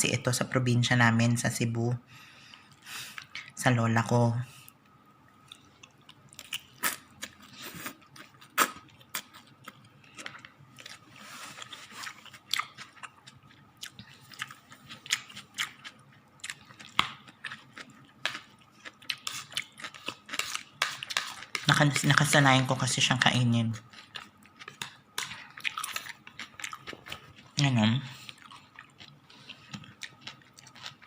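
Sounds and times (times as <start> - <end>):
person chewing crunchy food: 5.4 - 22.0, 23.8 - 31.0.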